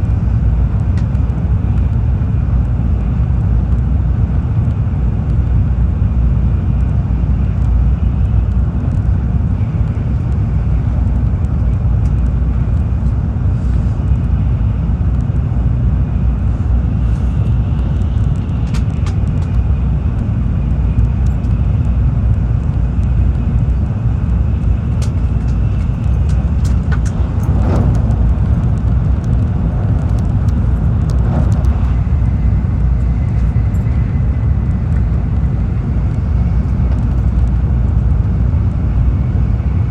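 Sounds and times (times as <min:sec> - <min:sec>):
train cabin rumble: 0:07.4 - 0:39.9.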